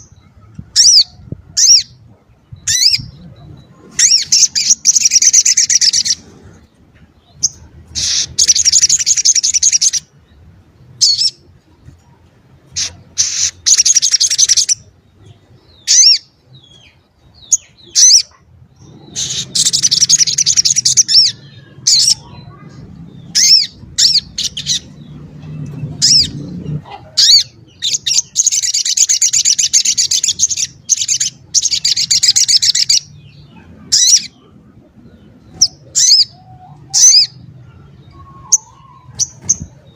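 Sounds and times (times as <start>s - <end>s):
sharp bird chips: 12.8s - 14.8s
bird trilling: 17.4s - 25.1s, 35.5s - 39.9s.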